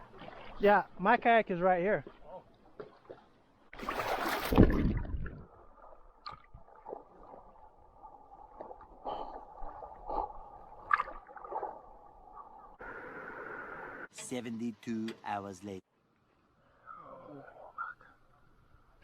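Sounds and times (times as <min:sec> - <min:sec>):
water gurgling: 0:03.8 - 0:14.1
water rushing: 0:10.6 - 0:14.1.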